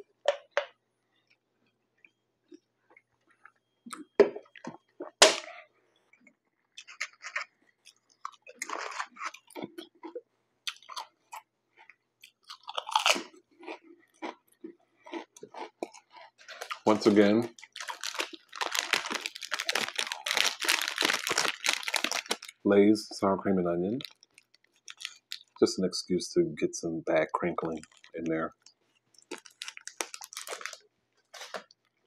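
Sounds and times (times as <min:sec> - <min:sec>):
person chewing crunchy food: 0:06.2 - 0:22.6, 0:24.0 - 0:25.6, 0:27.7 - 0:31.9.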